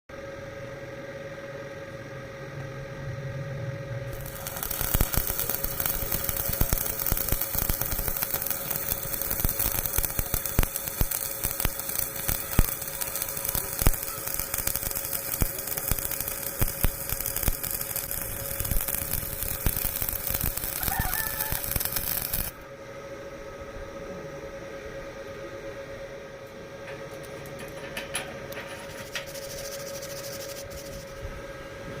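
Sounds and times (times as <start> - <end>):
steady hum: 0.1 - 32.0
welding arc crackling: 4.1 - 22.6, 27.1 - 31.2
faint rooster crowing: 20.6 - 22.5.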